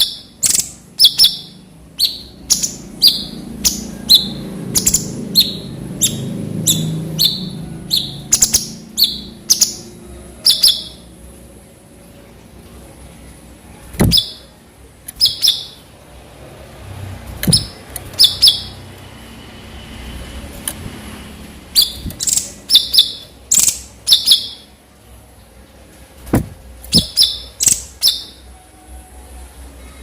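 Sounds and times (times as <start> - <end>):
songbird calling in sharp bursts: 0.0 - 11.1, 14.0 - 14.5, 15.2 - 15.9, 17.4 - 18.9, 21.7 - 24.8, 26.9 - 28.5.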